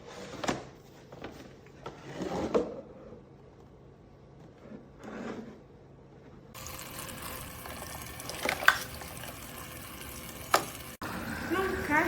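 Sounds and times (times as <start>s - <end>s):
toy faucet water running: 6.6s - 12.0s.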